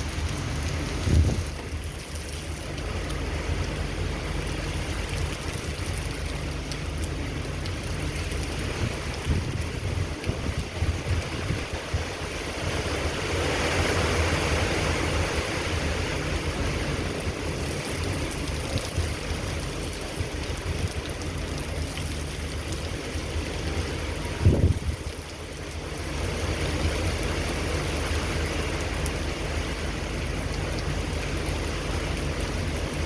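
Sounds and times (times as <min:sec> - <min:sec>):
storm wind buffeting microphone: 0:00.0 - 0:02.0, 0:07.1 - 0:25.8.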